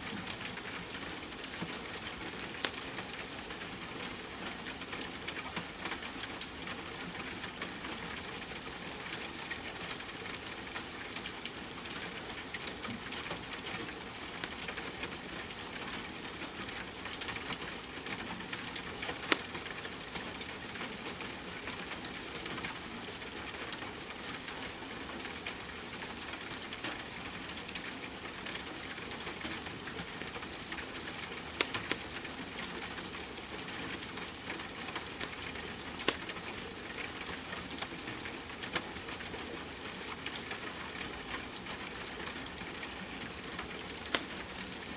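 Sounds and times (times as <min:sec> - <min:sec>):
wood fire crackling: 0:18.7 - 0:20.3, 0:28.8 - 0:39.0, 0:43.7 - 0:44.6.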